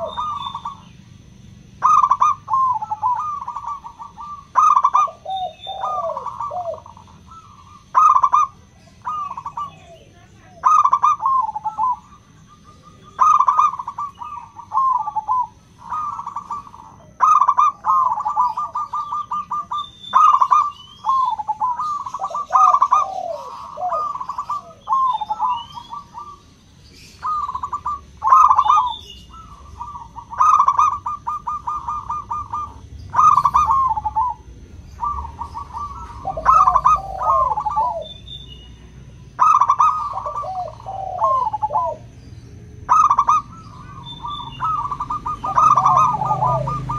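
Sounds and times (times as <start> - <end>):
doves cooing: 0.0 - 46.9
small birds chirping: 0.0 - 46.9.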